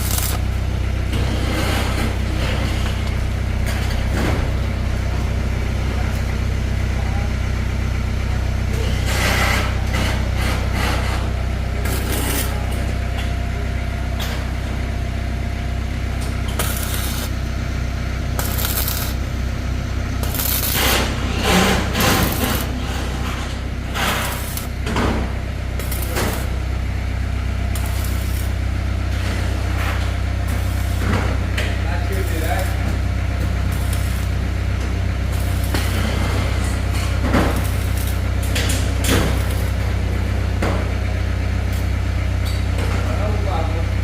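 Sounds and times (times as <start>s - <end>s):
low mechanical hum: 0.0s - 44.0s.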